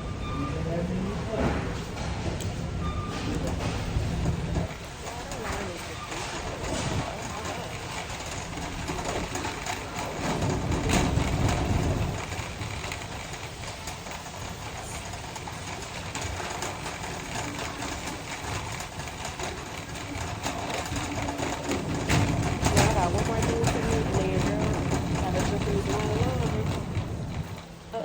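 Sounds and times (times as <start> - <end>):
shopping cart rolling and rattling: 0.3 - 28.0.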